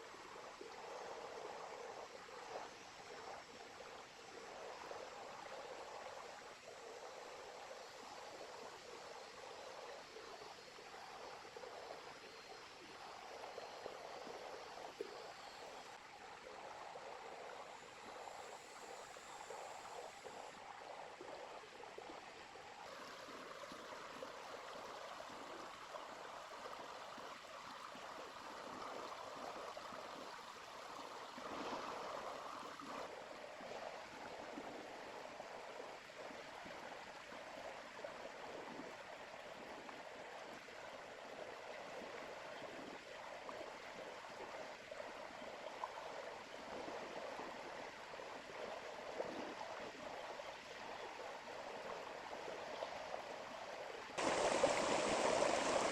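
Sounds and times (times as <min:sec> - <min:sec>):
river water flowing over stones: 0:46.3 - 0:55.9.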